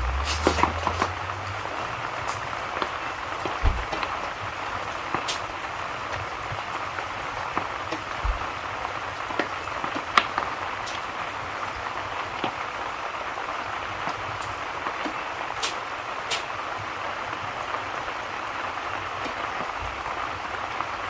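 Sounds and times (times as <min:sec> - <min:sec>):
steady rain: 0:00.0 - 0:21.0
sharp pops and ticks: 0:00.2 - 0:06.8.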